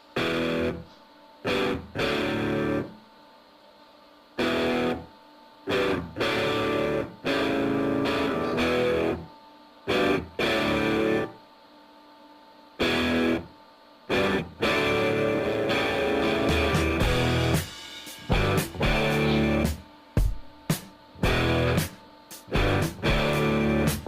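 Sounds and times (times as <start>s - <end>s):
distorted electric guitar chords: 0.0s - 0.9s, 1.5s - 3.0s, 4.4s - 5.1s, 5.7s - 9.3s, 9.9s - 11.4s, 12.8s - 13.5s, 14.1s - 24.0s.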